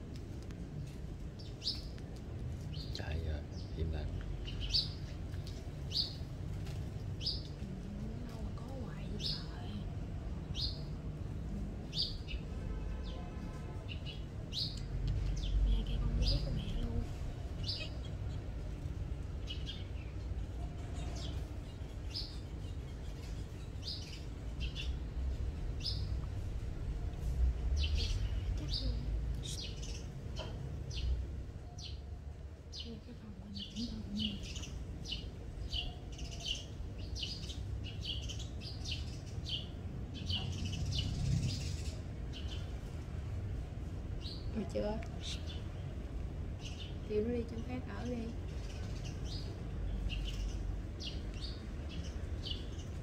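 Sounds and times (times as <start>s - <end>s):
birds chirping: 0.7s - 53.0s.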